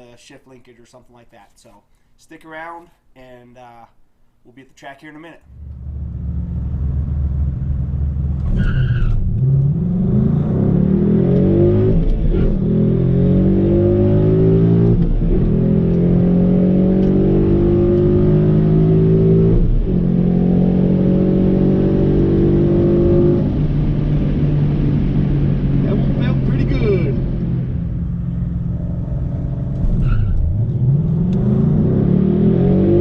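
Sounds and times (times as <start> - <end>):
car engine accelerating hard: 5.5 - 33.0.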